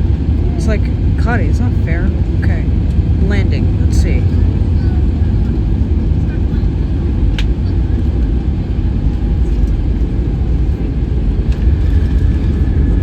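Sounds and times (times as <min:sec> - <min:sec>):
jet airliner cabin rumble: 0:00.0 - 0:13.0.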